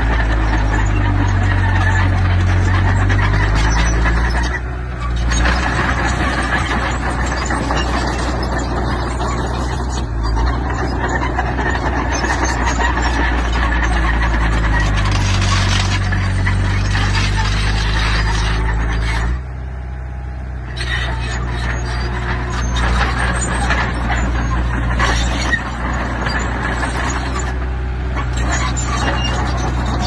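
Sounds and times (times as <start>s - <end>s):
metallic clatter and rattling: 0.0s - 19.5s
diesel engine running: 0.0s - 30.0s.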